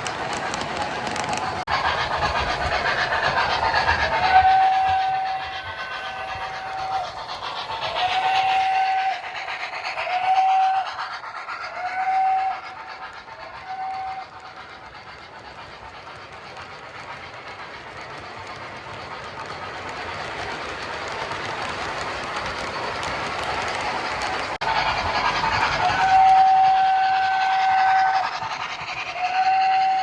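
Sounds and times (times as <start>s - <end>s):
train running noise: 0.0s - 30.0s
steam locomotive whistle blasts: 4.3s - 5.8s, 8.1s - 9.2s, 11.8s - 12.7s, 13.6s - 14.3s, 25.8s - 28.3s, 29.2s - 30.0s.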